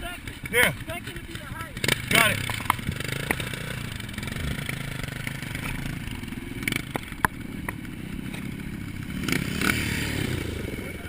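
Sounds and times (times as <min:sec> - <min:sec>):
dirt bike engine running: 0:00.0 - 0:11.0
sharp clicks: 0:01.8 - 0:03.6.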